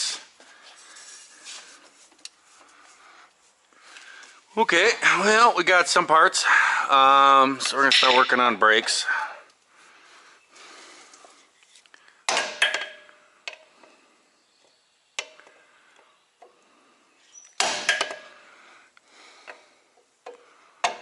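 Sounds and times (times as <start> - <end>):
metal tools clanking: 7.6 - 9.1.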